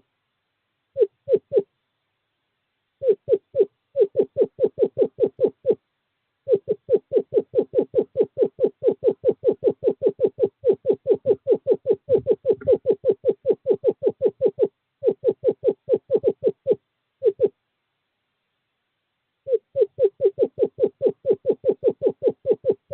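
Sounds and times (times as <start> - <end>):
screech owl trilling: 1.0 - 1.7, 3.0 - 5.8, 6.5 - 17.6, 19.5 - 22.9.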